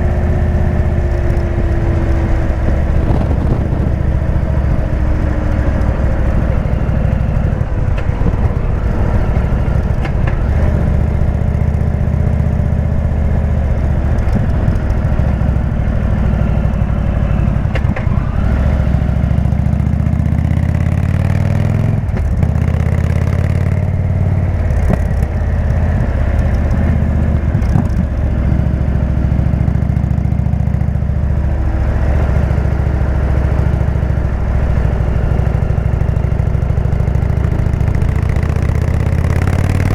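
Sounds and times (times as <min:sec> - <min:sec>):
motorcycle exhaust note: 0:00.0 - 0:39.9.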